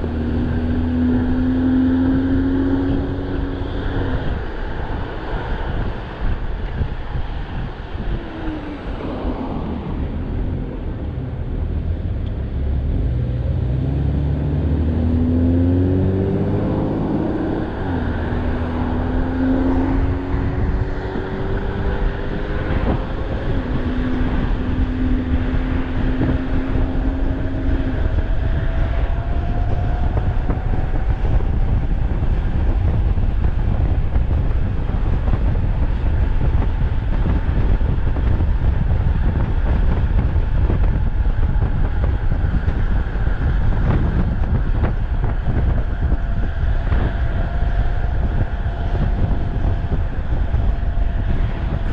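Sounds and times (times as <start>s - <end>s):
wind rushing over microphone: 0.0s - 51.9s.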